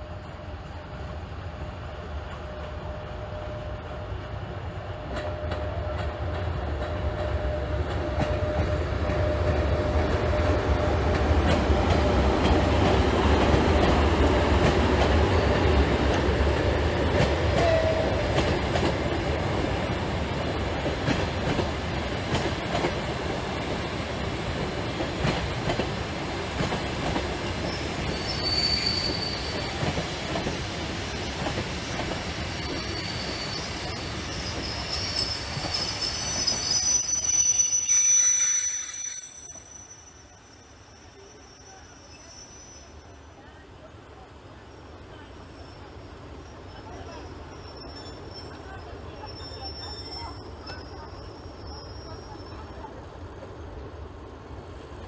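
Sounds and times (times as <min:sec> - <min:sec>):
high squeal: 0:27.7 - 0:29.8, 0:31.9 - 0:43.6.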